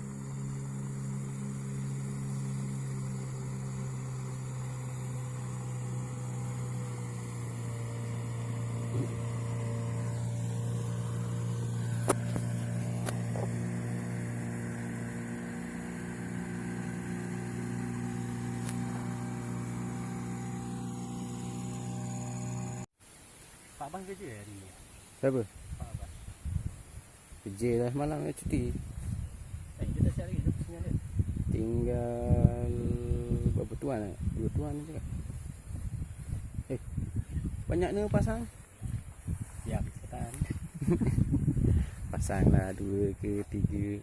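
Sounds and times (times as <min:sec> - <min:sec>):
vehicle engine droning: 0:00.0 - 0:22.9, 0:31.6 - 0:35.5.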